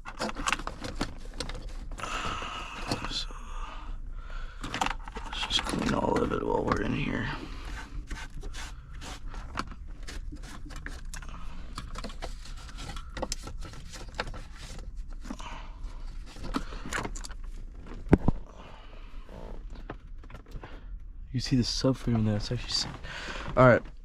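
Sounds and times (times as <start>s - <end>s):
clicks and scrapes of handled parts: 0.0s - 2.0s, 4.6s - 15.4s, 16.1s - 18.4s.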